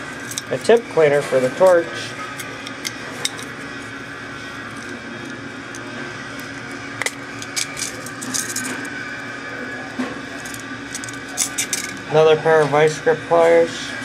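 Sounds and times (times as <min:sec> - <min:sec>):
steady background hum: 0:00.0 - 0:14.0
metal hand tools clinking: 0:07.0 - 0:08.9, 0:10.4 - 0:12.0.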